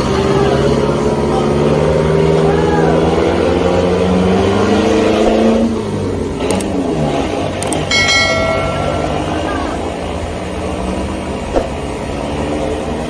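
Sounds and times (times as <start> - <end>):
vehicle engine running under load: 0.0 - 13.0.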